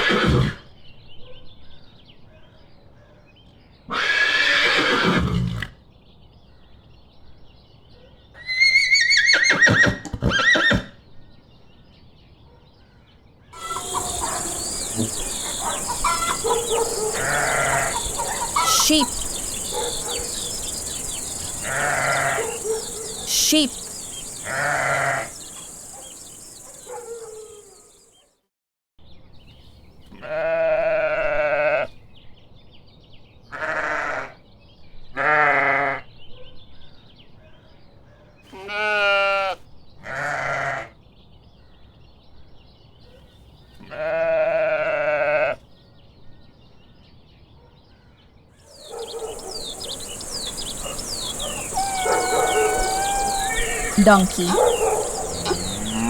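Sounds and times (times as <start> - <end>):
sheep bleating: 13.6 - 25.8, 51.6 - 56.0.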